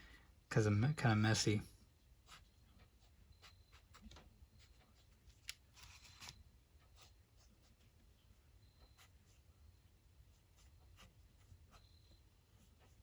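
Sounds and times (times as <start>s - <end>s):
pen scratching on paper: 2.2s - 6.3s, 8.8s - 9.5s, 10.2s - 13.0s.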